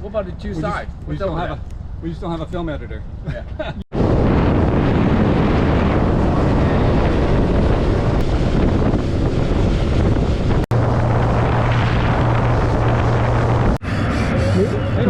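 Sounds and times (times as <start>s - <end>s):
wind rushing over microphone: 3.9s - 15.0s
boat motor running: 5.2s - 15.0s.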